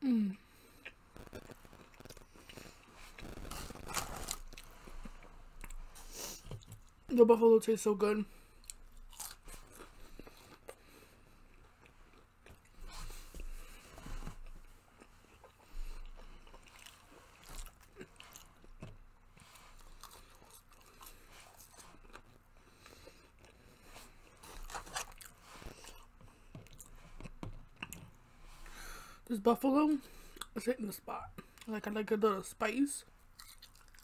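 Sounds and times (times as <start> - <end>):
mouth chewing food: 8.6 - 28.2, 33.3 - 34.0.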